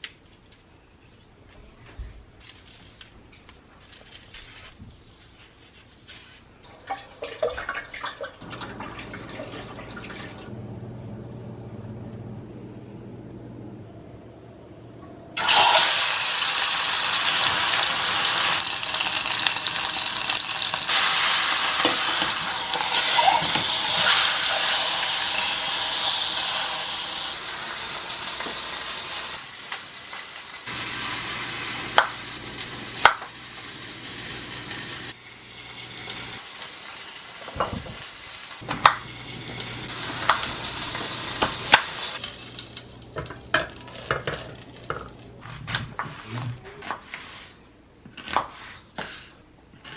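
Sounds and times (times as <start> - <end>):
food sizzling in hot oil: 15.4 - 43.4.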